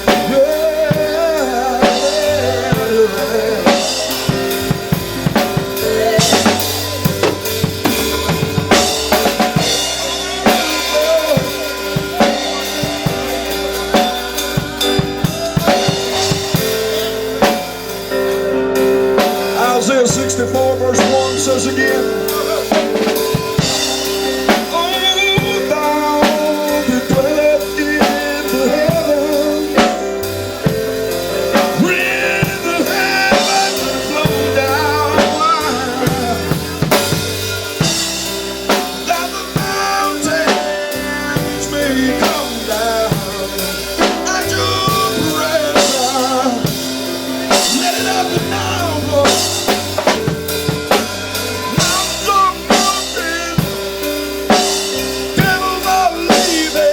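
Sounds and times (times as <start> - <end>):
drum kit with rimshots: 0.0 - 56.9
live gospel music: 0.0 - 56.9.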